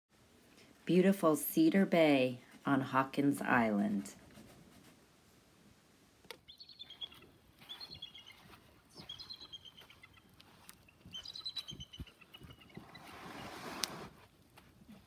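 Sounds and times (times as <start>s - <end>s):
bird chirping rapidly: 6.4s - 13.5s.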